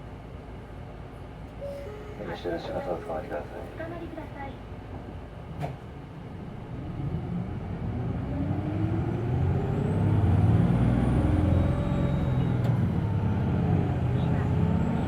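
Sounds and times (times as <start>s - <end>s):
bus diesel engine revving: 6.9s - 15.0s.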